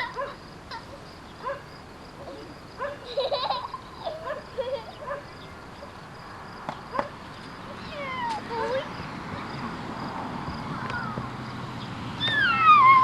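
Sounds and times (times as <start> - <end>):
children laughing and squealing: 0.0 - 1.0, 2.3 - 5.3, 7.8 - 9.6, 12.2 - 13.0.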